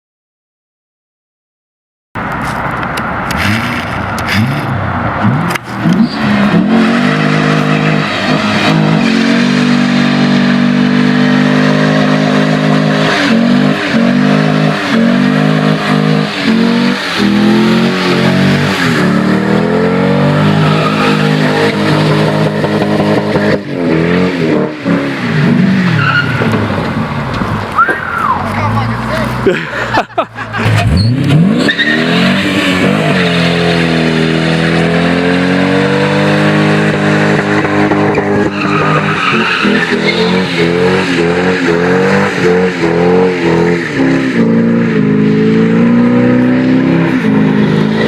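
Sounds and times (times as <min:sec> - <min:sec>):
engine revving high: 0:03.3 - 0:26.5, 0:30.5 - 0:48.0
tyres squealing: 0:12.1 - 0:22.4, 0:25.9 - 0:26.6, 0:30.6 - 0:33.9, 0:38.2 - 0:41.8.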